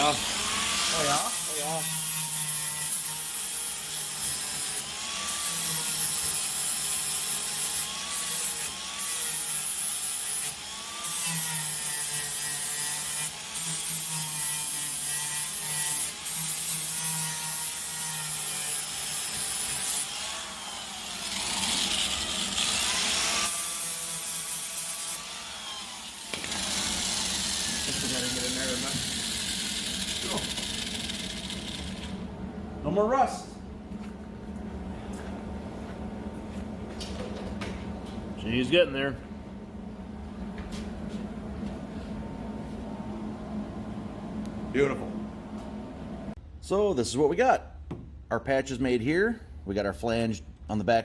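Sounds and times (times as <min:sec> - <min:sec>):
electric grinder on sheet metal: 0:00.0 - 0:32.2.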